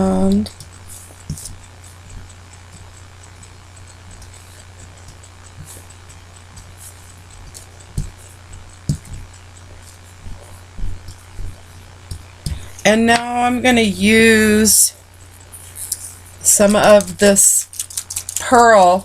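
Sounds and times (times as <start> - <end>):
steady low hum: 0.0 - 19.0
ink applicator tapping on paper: 0.4 - 1.6, 4.1 - 13.5, 15.9 - 18.9.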